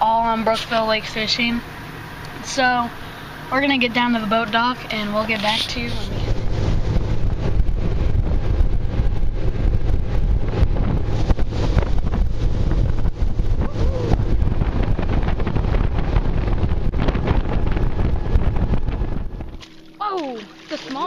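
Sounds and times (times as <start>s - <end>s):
moving vehicle rumble: 0.0s - 21.0s
wind buffeting microphone: 0.0s - 21.0s.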